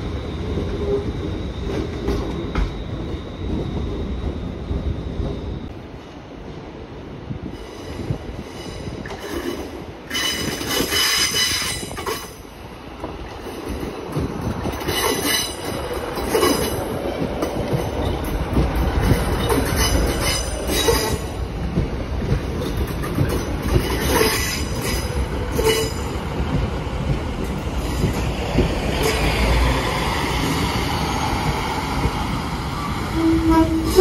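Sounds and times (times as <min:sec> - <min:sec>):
train wheels squealing: 0:00.0 - 0:05.7, 0:07.6 - 0:12.4, 0:14.4 - 0:21.4, 0:22.5 - 0:26.4, 0:27.5 - 0:34.0
train rumbling past slowly: 0:00.0 - 0:34.0
wheels clicking over rail joints: 0:09.0 - 0:29.7.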